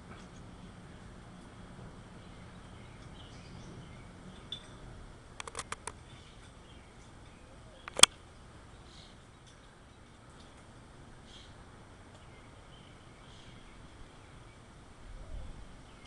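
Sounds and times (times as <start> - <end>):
sharp clicks: 5.4 - 6.0, 7.8 - 8.2.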